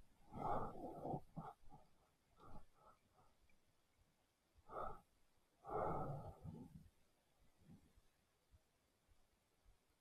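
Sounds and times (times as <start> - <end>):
person breathing: 0.0 - 3.5, 4.6 - 7.0.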